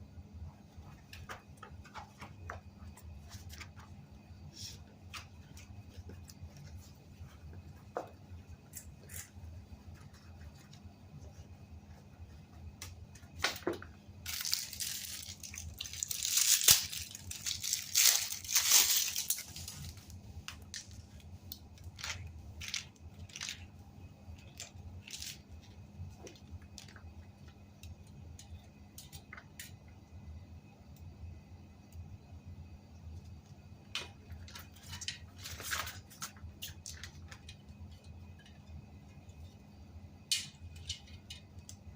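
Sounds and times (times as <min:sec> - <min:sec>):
steady low hum: 0:00.0 - 0:41.9
loud rustling and crinkling: 0:13.3 - 0:23.7, 0:34.3 - 0:38.0.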